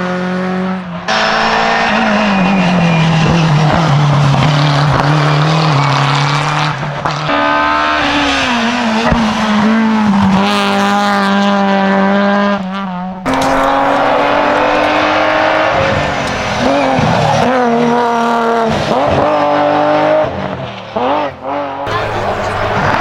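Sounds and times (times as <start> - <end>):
race car engine revving: 0.0 - 23.0.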